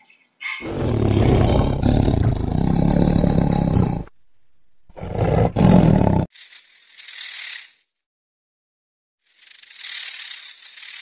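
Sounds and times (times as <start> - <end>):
tiger roaring: 0.6 - 4.1, 4.9 - 6.3.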